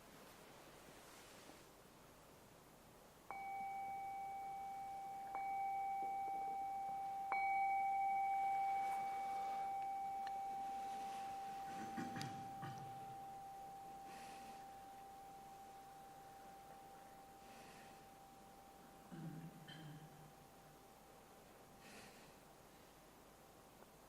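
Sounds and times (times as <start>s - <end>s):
faint rustling: 0.0s - 1.8s, 8.5s - 24.0s
singing bowl ringing: 3.3s - 22.0s.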